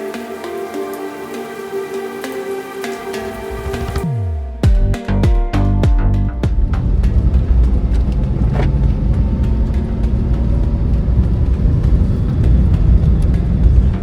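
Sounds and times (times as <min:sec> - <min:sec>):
engine and road rumble: 0:05.6 - 0:14.0.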